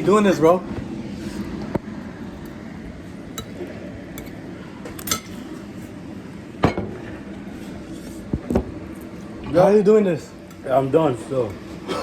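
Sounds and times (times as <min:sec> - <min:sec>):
steady low background hum: 0:00.0 - 0:12.0
utensils clinking against a dish: 0:03.4 - 0:03.6, 0:04.2 - 0:05.7, 0:10.4 - 0:10.7.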